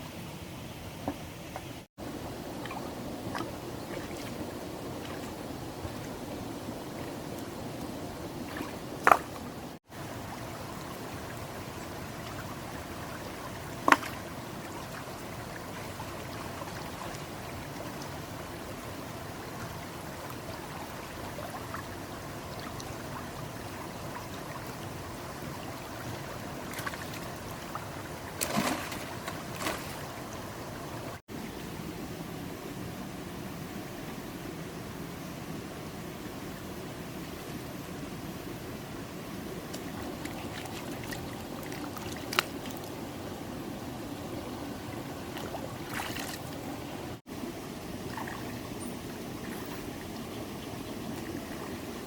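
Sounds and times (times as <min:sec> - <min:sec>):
sharp splashes or knocks: 0:28.4 - 0:30.0.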